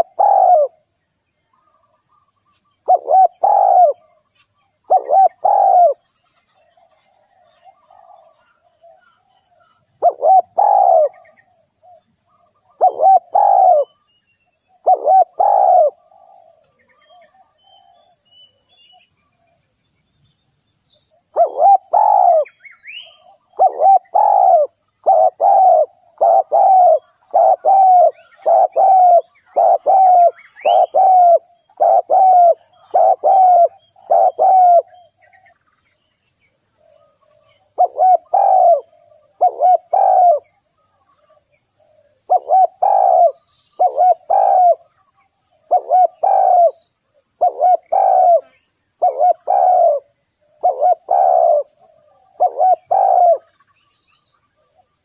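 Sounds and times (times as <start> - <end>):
dove cooing: 0.0 - 0.9, 2.8 - 6.1, 6.7 - 14.0, 14.7 - 18.2, 21.2 - 35.6, 36.8 - 53.6
small birds chirping: 0.0 - 55.0.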